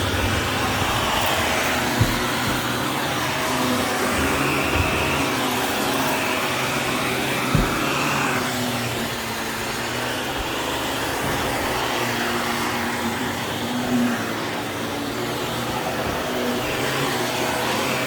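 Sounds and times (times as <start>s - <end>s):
vacuum cleaner whine: 0.0s - 18.0s
knock: 0.2s - 2.8s, 7.5s - 8.1s.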